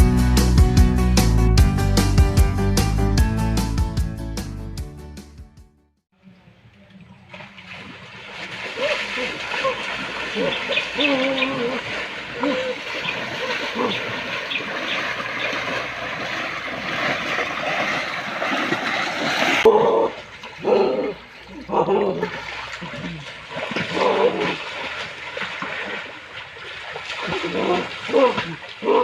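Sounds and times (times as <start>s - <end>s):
rushing water: 6.9s - 29.0s
voices or animal calls: 8.8s - 15.8s.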